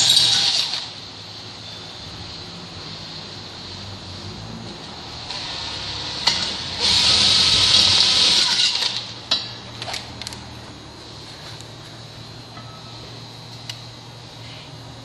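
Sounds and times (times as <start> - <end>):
cordless drill cutting steel: 0.0 - 0.9, 5.3 - 9.1.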